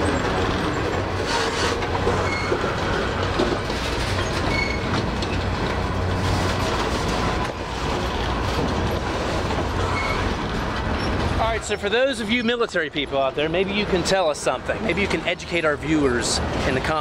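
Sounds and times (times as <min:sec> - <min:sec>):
faint high wheel squeals: 0:00.0 - 0:03.2, 0:03.9 - 0:05.4, 0:09.8 - 0:11.7
wheels clacking over rail joints: 0:00.0 - 0:17.0.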